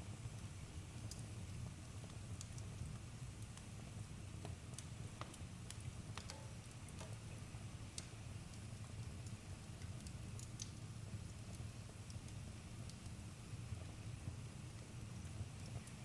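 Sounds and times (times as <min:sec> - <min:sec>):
low rumble of burning fire: 0:00.0 - 0:16.0
campfire crackling and popping: 0:00.2 - 0:16.0.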